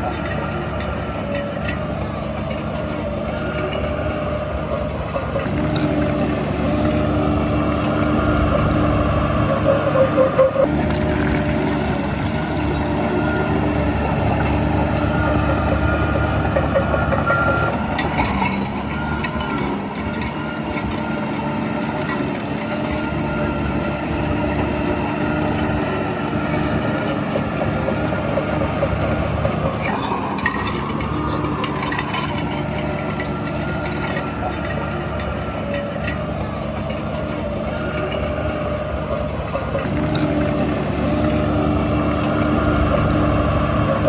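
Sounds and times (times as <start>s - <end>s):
heavy diesel engine running: 0.0s - 44.0s
metal clanks: 26.4s - 38.6s.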